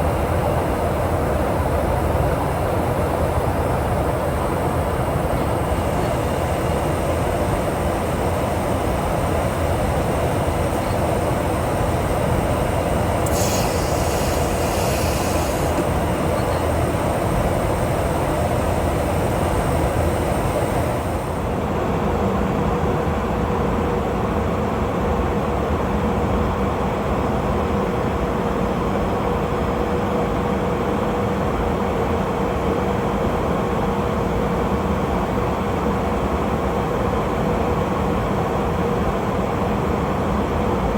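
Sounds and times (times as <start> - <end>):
jet engines rumbling: 0.0 - 21.6
steady hum: 0.0 - 21.8
brief hiss: 13.2 - 15.9.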